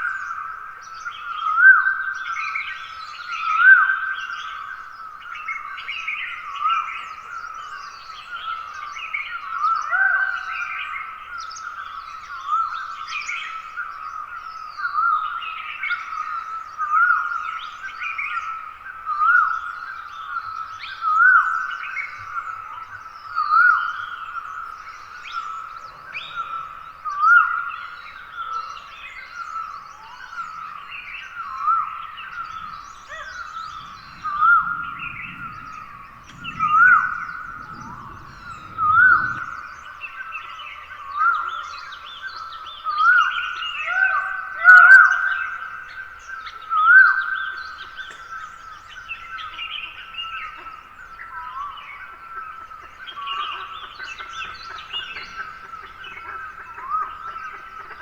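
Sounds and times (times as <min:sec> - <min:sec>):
birds chirping and twittering: 0:00.0 - 0:58.0
faint low rumble: 0:31.3 - 0:41.4.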